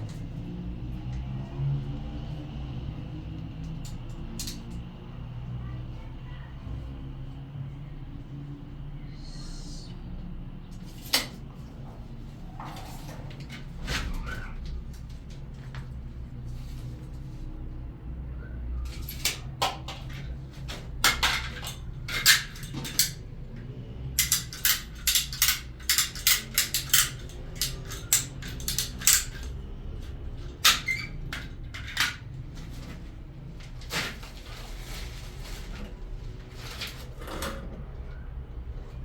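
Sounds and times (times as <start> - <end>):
hard objects clinking: 18.9 - 23.2, 24.2 - 32.7.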